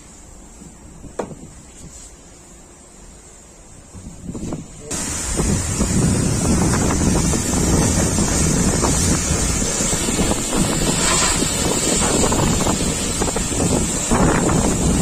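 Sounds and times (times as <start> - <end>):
pressure washer spraying water: 4.9 - 15.0.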